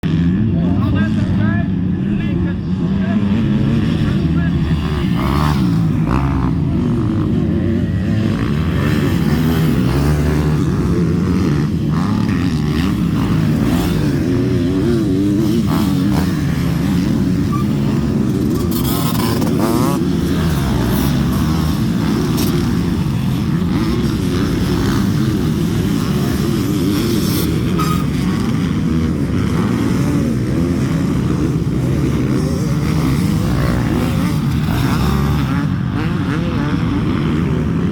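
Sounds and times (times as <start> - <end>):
motocross bike engines revving: 0.0 - 37.9.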